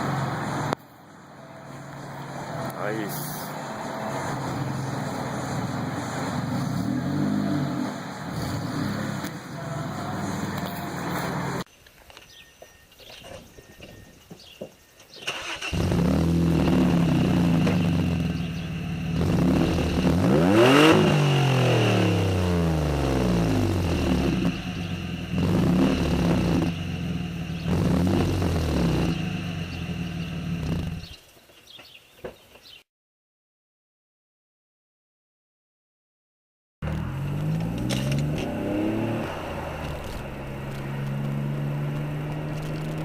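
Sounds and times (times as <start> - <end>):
car engine starting and revving: 0.0 - 0.8, 1.8 - 11.7, 15.2 - 31.2, 36.8 - 43.0.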